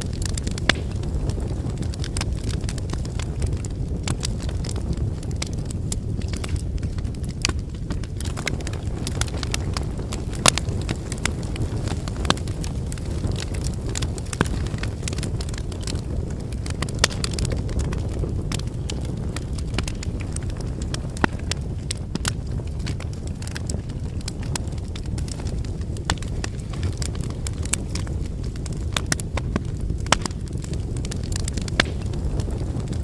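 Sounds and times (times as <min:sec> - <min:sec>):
firewood crackling and popping: 0:00.0 - 0:33.0
low rumble of flames: 0:00.0 - 0:33.0.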